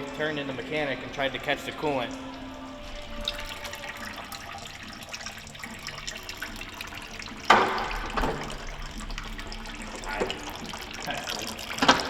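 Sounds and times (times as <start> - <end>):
coolant splashing onto floor: 0.0 - 12.0.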